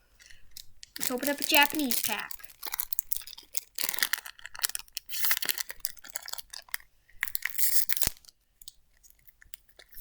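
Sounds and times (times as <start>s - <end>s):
foil wrapper tearing and crinkling: 0.8s - 8.4s.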